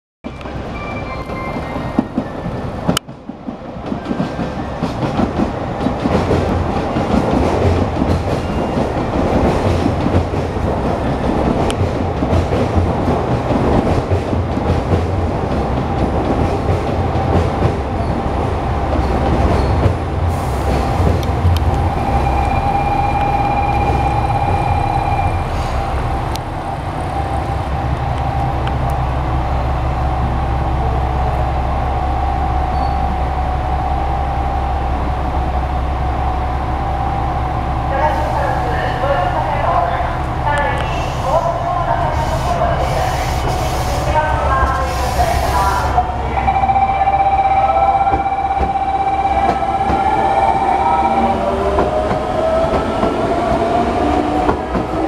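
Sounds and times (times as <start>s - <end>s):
train wheels rumbling on rails: 0.2s - 36.0s, 36.6s - 55.0s.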